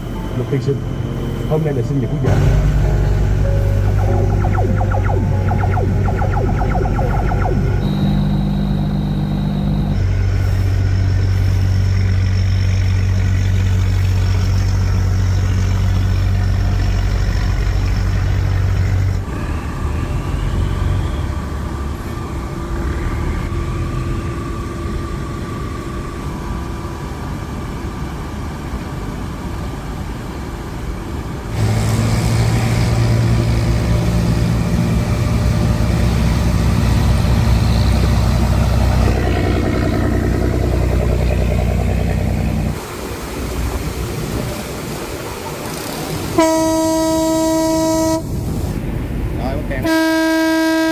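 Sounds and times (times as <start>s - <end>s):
boat engine humming: 0.0s - 19.3s, 31.6s - 50.9s.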